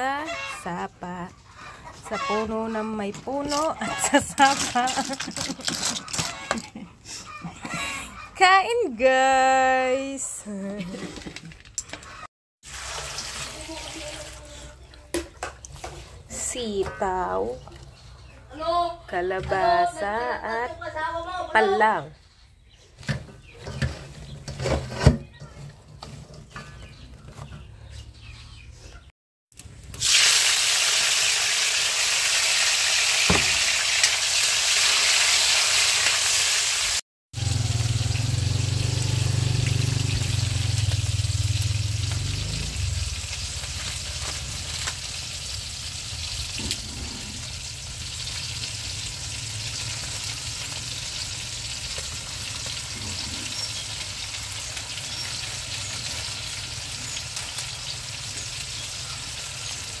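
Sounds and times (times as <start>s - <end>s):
vegetables sizzling in hot oil: 12.6s - 14.2s, 30.0s - 60.0s.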